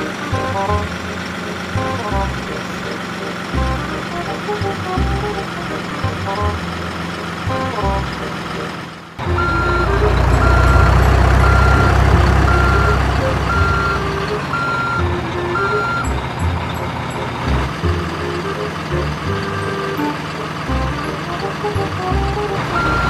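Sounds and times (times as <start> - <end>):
light melodic notes: 0.0 - 8.4, 9.2 - 23.0
low engine rumble: 0.0 - 23.0
reversing alarm beeping: 9.2 - 21.3, 22.6 - 23.0.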